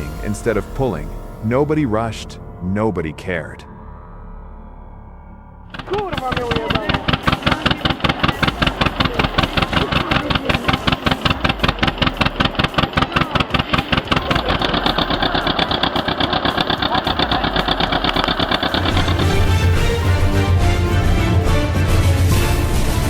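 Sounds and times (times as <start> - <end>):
tractor engine chugging: 5.7 - 23.0.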